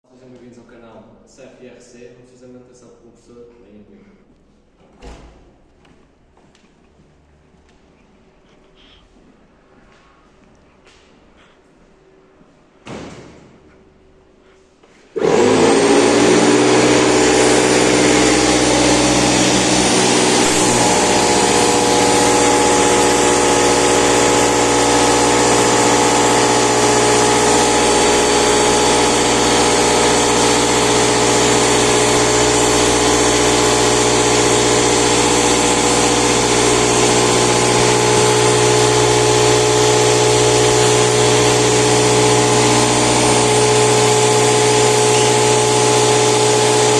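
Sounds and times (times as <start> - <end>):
brief thump: 4.8 - 5.5, 12.8 - 13.8
air compressor running: 12.8 - 46.9.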